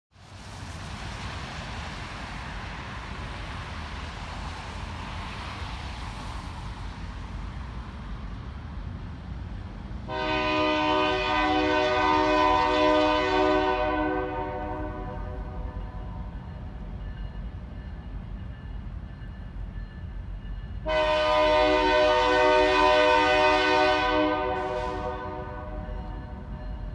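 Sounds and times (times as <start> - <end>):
locomotive air horn blast: 10.1 - 16.2, 20.8 - 26.4.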